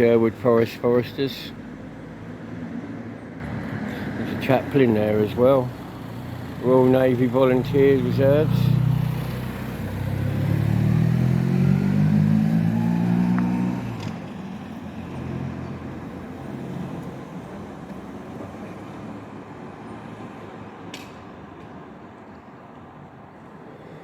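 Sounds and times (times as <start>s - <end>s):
car accelerating past: 8.0s - 14.3s.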